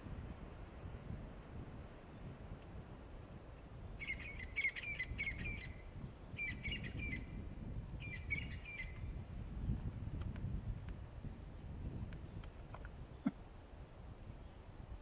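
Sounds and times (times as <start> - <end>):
bird chirping song: 4.0 - 7.4, 8.0 - 9.1.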